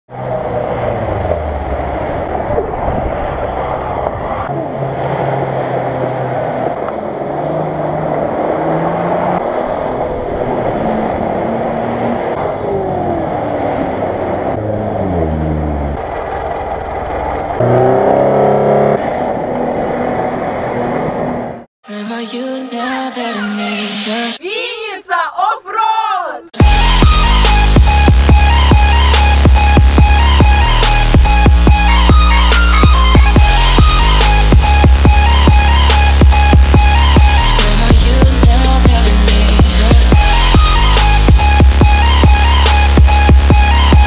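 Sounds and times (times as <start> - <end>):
vehicles splashing through mud: 0.1 - 21.4
off-road engines revving: 0.1 - 21.7, 26.6 - 44.0.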